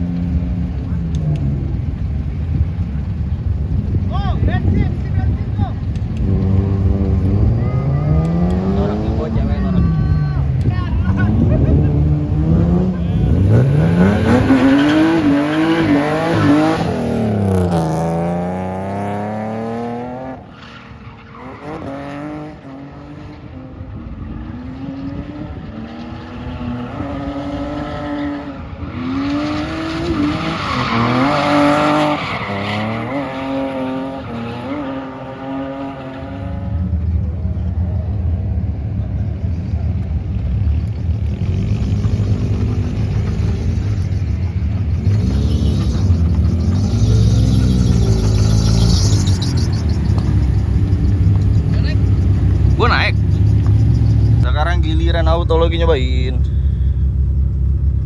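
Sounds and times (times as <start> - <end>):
car engine revving: 5.8 - 10.0, 10.6 - 20.5, 21.4 - 58.0
tyre squeal: 20.4 - 22.0, 28.0 - 35.3, 40.9 - 54.6.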